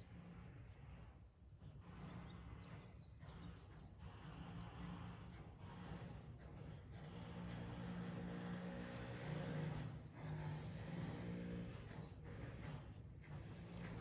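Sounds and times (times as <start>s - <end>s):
fire roaring in metal can: 4.9s - 14.0s.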